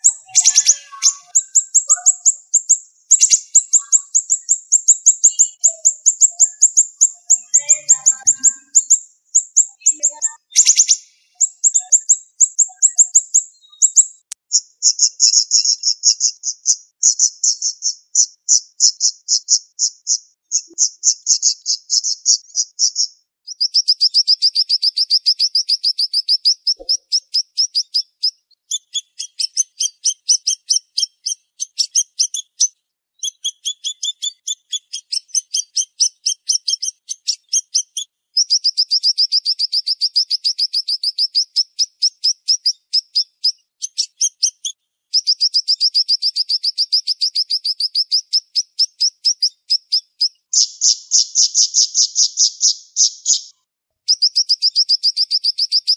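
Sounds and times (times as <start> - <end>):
songbird singing fast high notes: 0.0 - 14.3.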